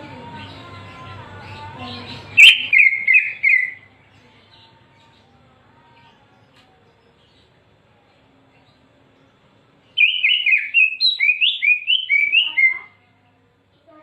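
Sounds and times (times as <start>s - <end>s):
bird whistled song: 2.2s - 3.9s, 9.9s - 12.9s.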